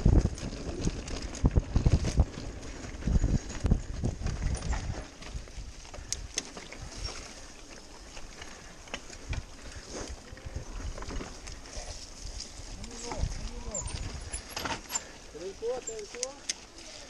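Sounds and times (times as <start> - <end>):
bike knocking and rattling: 0.0 - 16.8
tyres rolling on dirt: 0.0 - 17.0.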